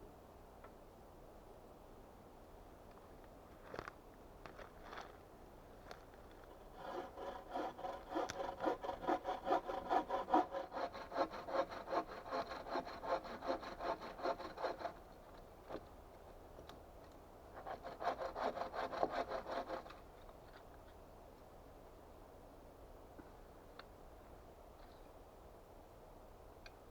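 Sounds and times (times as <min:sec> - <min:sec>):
hand saw cutting wood: 0:06.5 - 0:15.1, 0:17.6 - 0:20.0.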